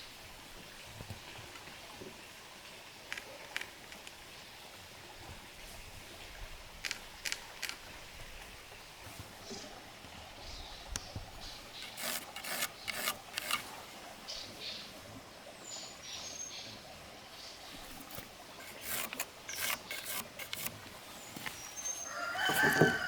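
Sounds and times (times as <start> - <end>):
scraping strokes on wood: 11.8 - 13.8, 17.8 - 20.8, 22.4 - 23.0.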